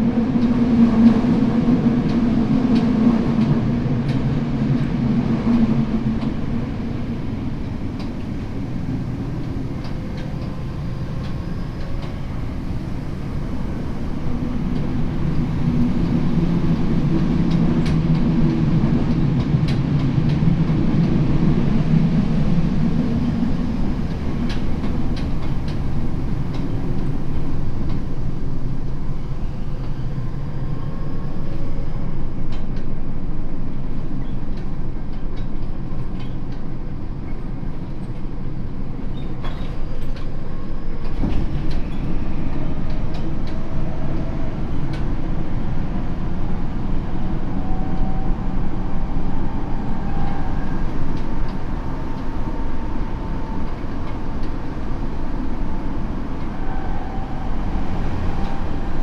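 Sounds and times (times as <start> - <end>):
train wheels rumbling on rails: 0.0 - 59.0
faint train motor tones: 47.0 - 59.0.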